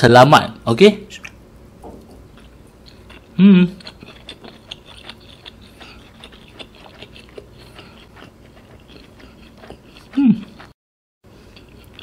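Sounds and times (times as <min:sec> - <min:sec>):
chewing with mouth clicks: 0:02.0 - 0:10.8, 0:11.4 - 0:12.0.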